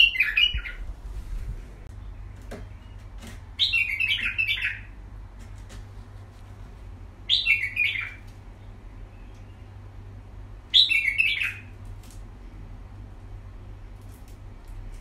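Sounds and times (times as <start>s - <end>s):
small bird chirping: 0.0s - 0.9s, 1.9s - 5.0s, 7.2s - 9.8s, 10.7s - 11.8s
steady low hum: 0.0s - 15.0s.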